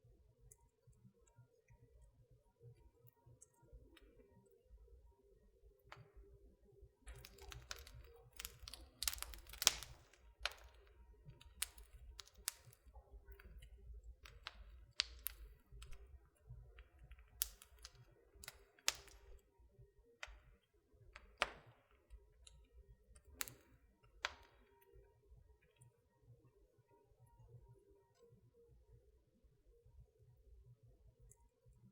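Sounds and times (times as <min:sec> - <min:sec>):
wood fire crackling: 0:07.0 - 0:19.6, 0:20.2 - 0:25.1.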